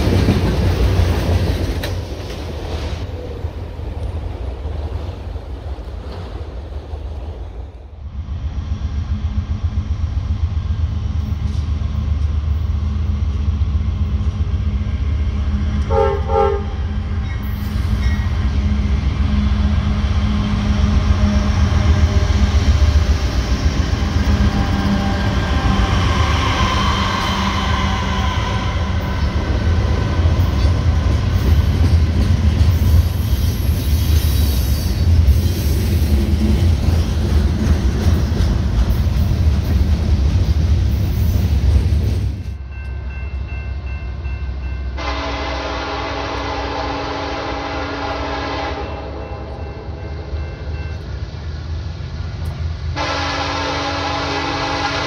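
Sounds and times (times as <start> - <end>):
freight cars rumbling and clattering: 0.0 - 7.9, 28.0 - 33.8, 35.0 - 42.6
diesel locomotives running: 0.0 - 55.0
train horn blast: 15.9 - 16.8, 44.9 - 50.4, 52.9 - 55.0.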